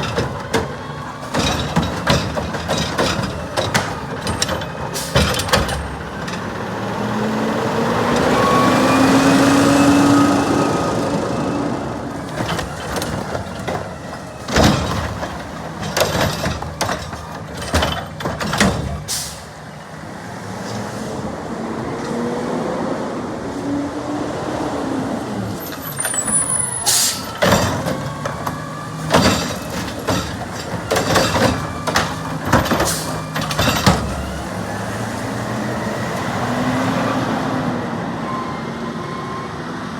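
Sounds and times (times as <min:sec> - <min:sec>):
bangs and clatter: 0:00.0 - 0:06.4, 0:12.2 - 0:19.5, 0:26.0 - 0:34.5
garbage truck diesel engine: 0:00.0 - 0:39.9
air brake hiss: 0:19.1 - 0:19.5, 0:26.8 - 0:27.3.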